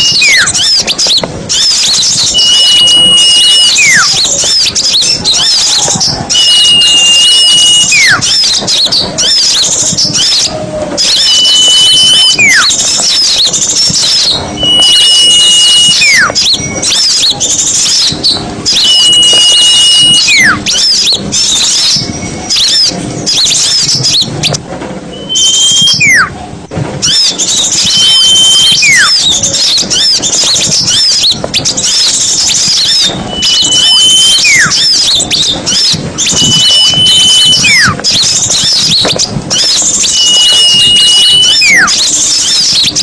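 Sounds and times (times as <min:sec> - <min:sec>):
small songbirds chirping: 0:00.0 - 0:24.6, 0:27.0 - 0:43.0
high whistle sliding down: 0:01.5 - 0:04.2, 0:14.0 - 0:17.3, 0:18.7 - 0:22.9, 0:27.0 - 0:29.3, 0:32.5 - 0:38.0, 0:38.6 - 0:42.8.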